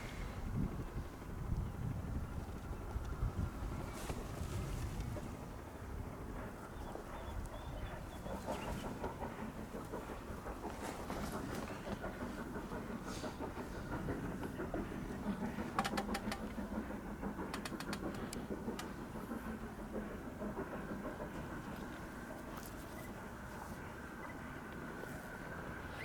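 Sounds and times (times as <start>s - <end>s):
distant train rumble: 0.0s - 26.0s
sharp clicks: 15.8s - 16.6s, 17.3s - 19.0s.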